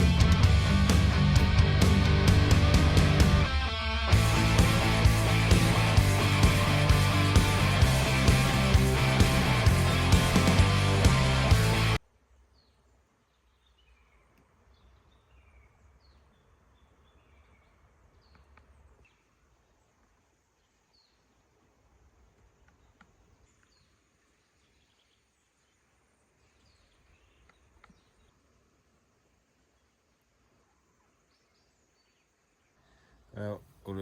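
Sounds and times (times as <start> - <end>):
low rumble: 0.0 - 3.5, 4.1 - 12.0
background music: 0.0 - 12.0.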